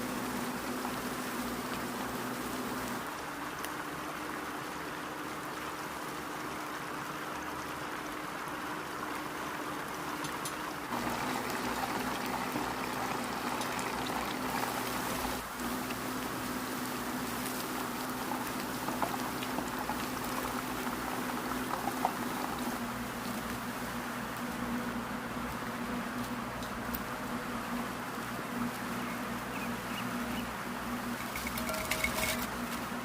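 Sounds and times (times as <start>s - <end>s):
small crackles: 10.2s - 30.4s, 31.0s - 33.0s
food sizzling in hot oil: 10.9s - 22.8s.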